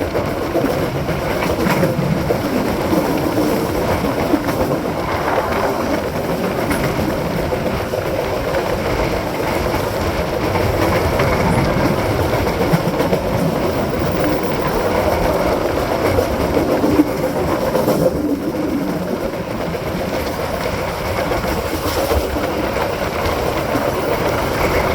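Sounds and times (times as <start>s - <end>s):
rushing wind: 0.0s - 24.9s
train wheels rumbling on rails: 0.0s - 24.9s.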